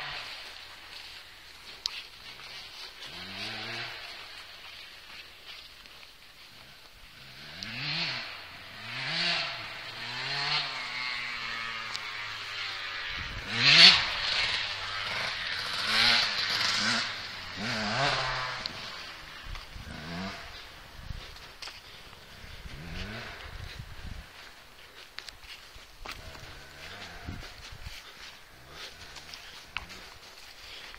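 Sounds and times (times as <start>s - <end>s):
dirt bike engine revving: 0.0s - 30.9s.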